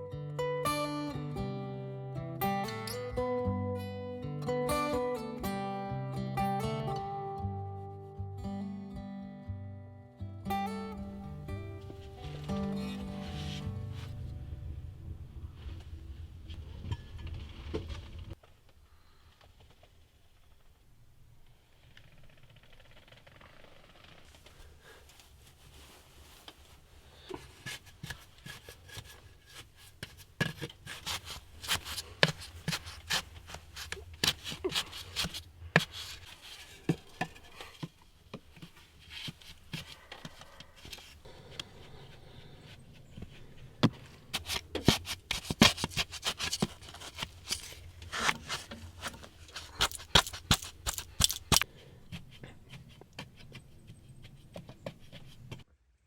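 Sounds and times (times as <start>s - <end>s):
faint low hum: 11.1s - 23.2s
handling clicks and scrapes: 11.8s - 14.2s, 22.2s - 55.7s.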